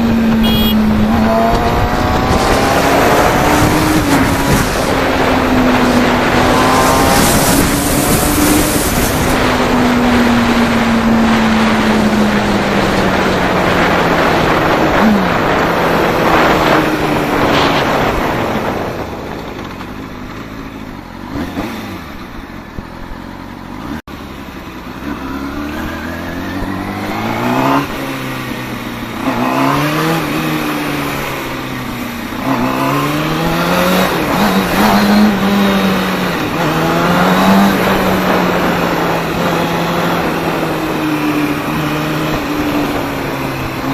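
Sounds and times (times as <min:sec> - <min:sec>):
wind rushing: 0:00.0 - 0:19.6
motorcycle engine accelerating: 0:00.0 - 0:43.9.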